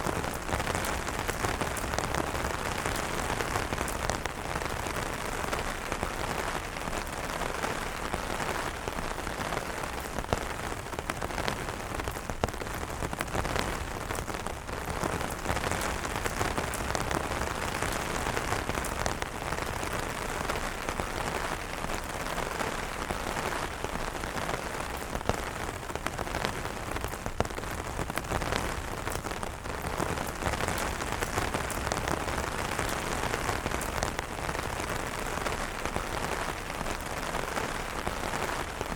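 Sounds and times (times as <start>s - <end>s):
rain pattering on umbrella: 0.0s - 38.9s.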